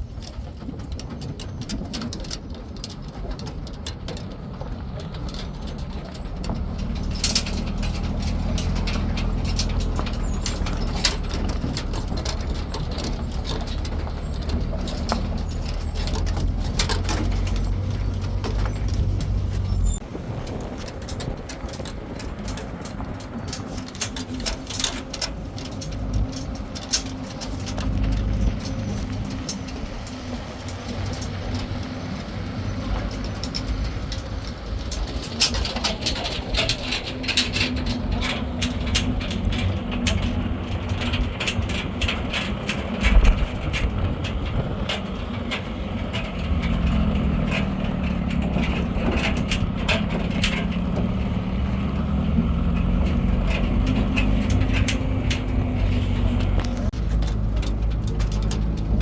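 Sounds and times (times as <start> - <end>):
vehicle clicks and rattles: 0.0 - 59.0
vehicle engine running: 0.0 - 59.0.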